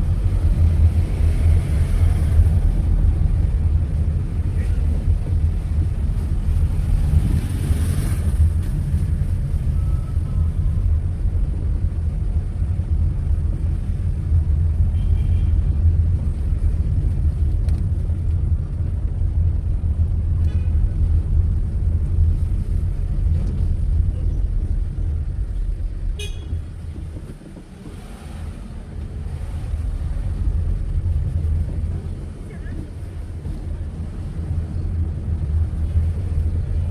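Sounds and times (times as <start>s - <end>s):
car rumbling in traffic: 0.0s - 36.9s
car horn toots: 26.2s - 26.6s.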